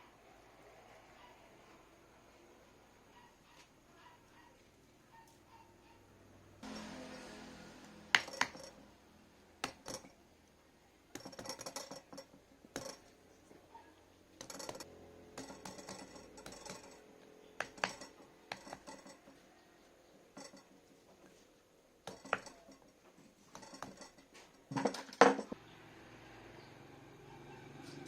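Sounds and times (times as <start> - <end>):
small metal tools clinking: 9.6 - 10.2, 11.2 - 13.1, 14.4 - 19.4, 20.3 - 20.9, 22.1 - 25.6
rapid metal clattering: 11.2 - 13.0, 14.4 - 19.4, 20.3 - 20.8, 22.1 - 25.6.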